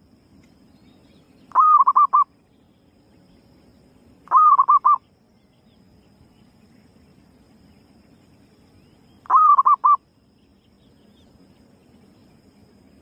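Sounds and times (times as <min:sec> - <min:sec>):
dove cooing: 0:01.5 - 0:02.3, 0:04.3 - 0:05.0, 0:09.3 - 0:10.0.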